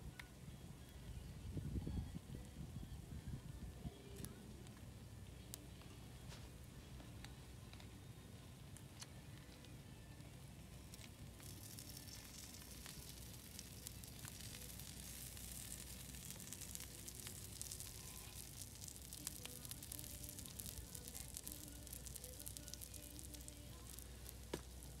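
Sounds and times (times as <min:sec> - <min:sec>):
meat sizzling on a griddle: 0:11.2 - 0:25.0.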